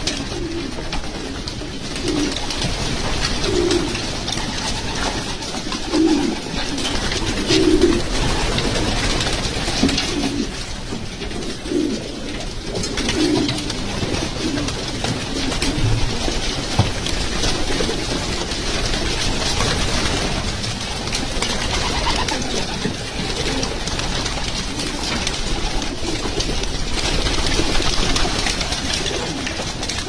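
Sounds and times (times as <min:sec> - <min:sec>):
pigeon clicks and rustles: 0:00.0 - 0:30.0
pigeons cooing: 0:00.0 - 0:30.0.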